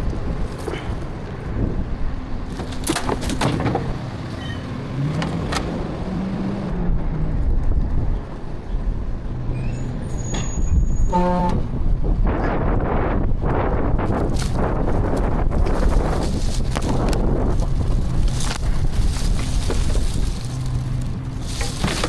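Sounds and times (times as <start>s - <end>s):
brief horn toot: 10.3s - 11.7s
garbage truck engine running: 13.7s - 22.0s.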